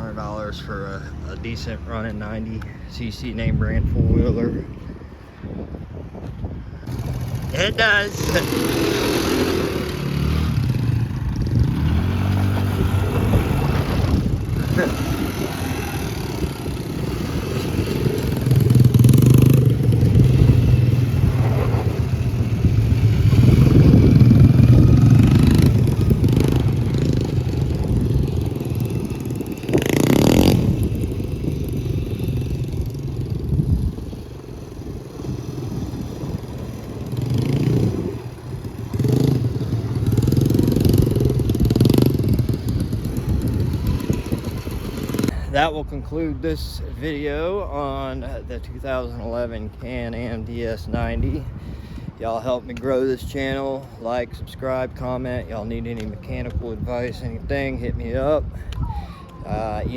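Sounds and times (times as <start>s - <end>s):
loud rush of noise: 6.7s - 47.4s
small engine revving: 6.8s - 45.5s.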